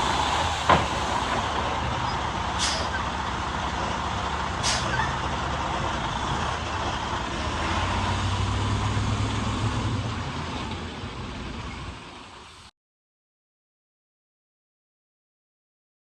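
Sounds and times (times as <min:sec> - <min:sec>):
truck diesel engine running: 0:00.0 - 0:12.7
short sharp air hiss: 0:02.6 - 0:03.0, 0:04.6 - 0:04.9.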